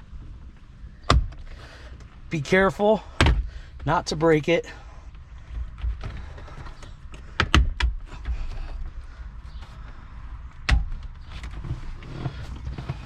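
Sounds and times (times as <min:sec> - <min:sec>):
rubbing and handling noise: 0:08.3 - 0:13.0.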